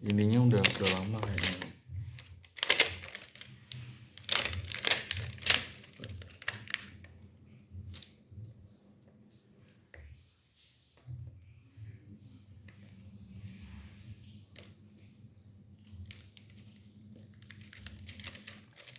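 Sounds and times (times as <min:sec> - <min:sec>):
packaging crinkling: 0:00.0 - 0:07.1, 0:16.0 - 0:18.9.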